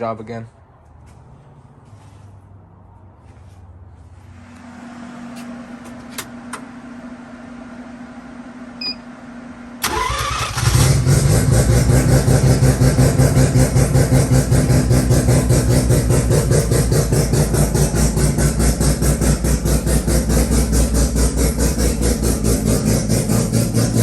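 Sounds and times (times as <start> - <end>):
rotary engine idling: 9.8 - 24.0.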